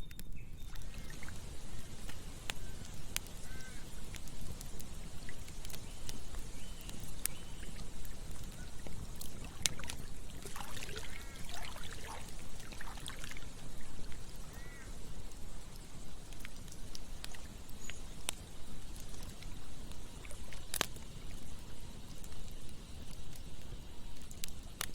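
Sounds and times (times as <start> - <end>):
campfire crackling and popping: 0.0 - 24.9
flowing stream water: 0.7 - 5.8, 6.8 - 17.6.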